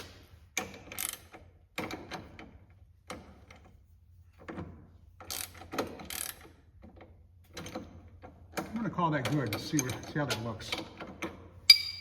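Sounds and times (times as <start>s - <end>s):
ratchet wrench clicking: 5.2s - 6.6s.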